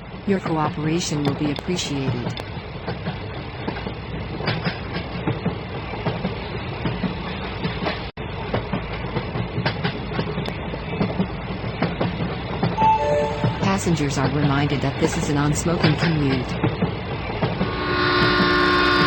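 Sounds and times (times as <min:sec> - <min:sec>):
train wheels clattering on rails: 0:02.5 - 0:12.7.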